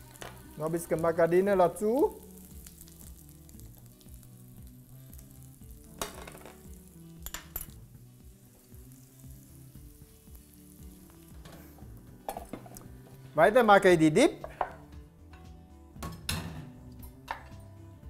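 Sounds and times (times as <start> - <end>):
potato frying in a pan: 0.0 - 13.2.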